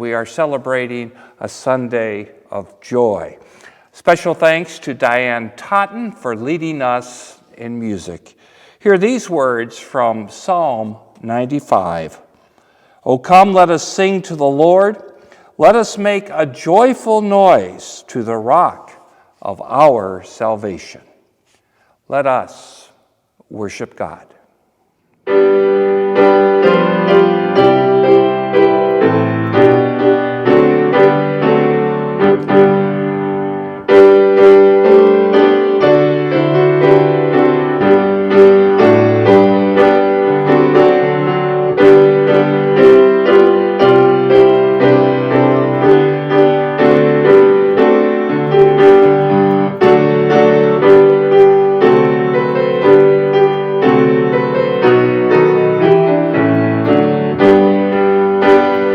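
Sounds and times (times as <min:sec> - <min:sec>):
piano music: 0:25.2 - 0:58.9.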